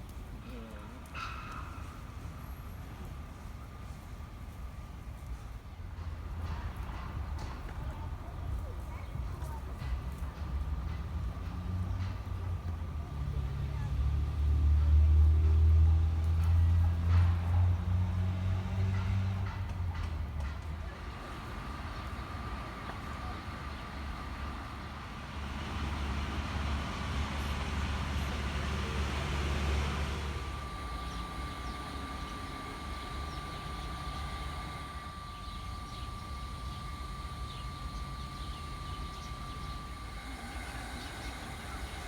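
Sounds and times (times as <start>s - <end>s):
road traffic rumbling: 0.0s - 42.0s
steady high whine: 22.9s - 42.0s.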